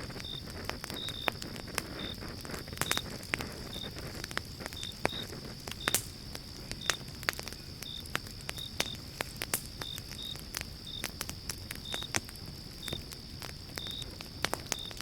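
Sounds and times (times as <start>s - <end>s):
campfire crackling and popping: 0.0s - 15.0s
steady high hiss: 0.0s - 15.0s.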